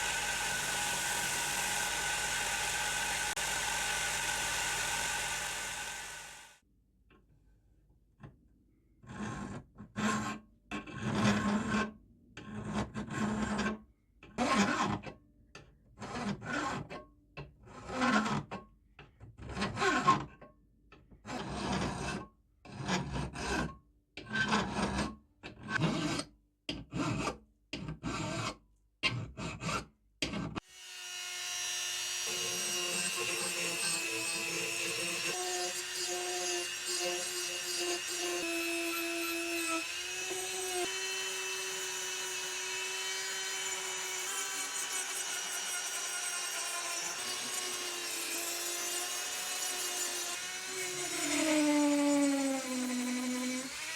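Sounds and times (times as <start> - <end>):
file rasping on steel: 0.0 - 6.5, 25.7 - 53.9.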